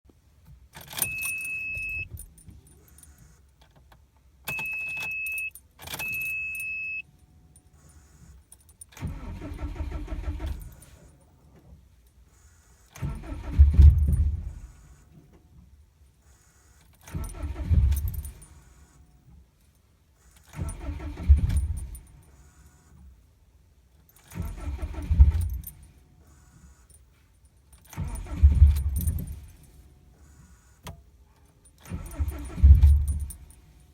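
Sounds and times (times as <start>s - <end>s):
keys jingling: 0.8s - 3.2s, 4.5s - 6.8s, 27.6s - 29.8s, 31.6s - 33.7s
short warning beeps: 1.0s - 2.1s, 4.5s - 7.0s
car engine cranking: 9.0s - 11.0s, 13.0s - 14.9s, 17.0s - 18.6s, 20.4s - 22.3s, 24.1s - 25.8s, 27.8s - 30.5s, 31.7s - 33.6s.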